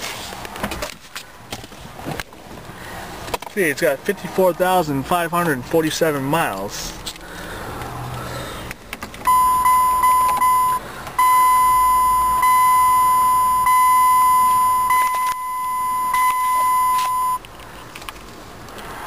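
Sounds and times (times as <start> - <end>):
dashboard warning beeper tone: 9.3 - 17.4.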